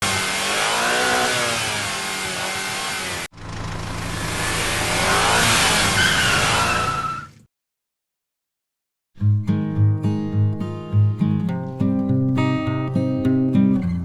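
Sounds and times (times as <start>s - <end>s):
engine revving: 0.0s - 7.0s.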